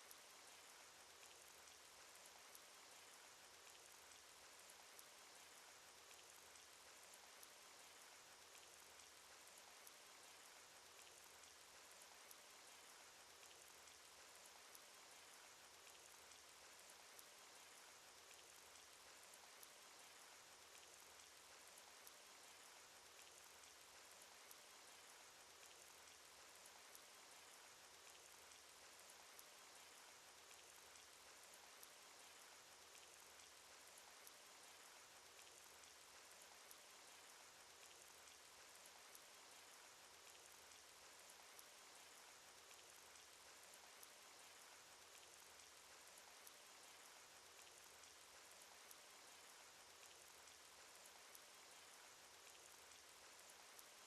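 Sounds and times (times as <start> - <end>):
faint steady rain: 0.0 - 54.0
raindrop ticks: 0.0 - 54.0.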